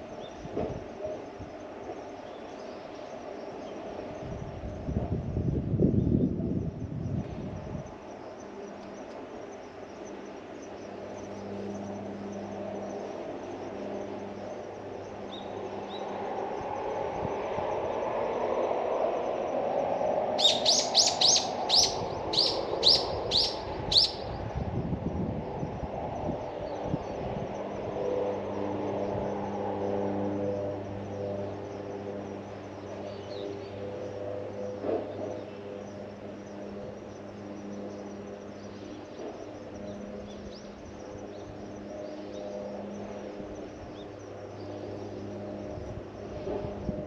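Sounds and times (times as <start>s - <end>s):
distant engine hum: 0.0s - 47.0s
bird chirping: 20.4s - 24.4s.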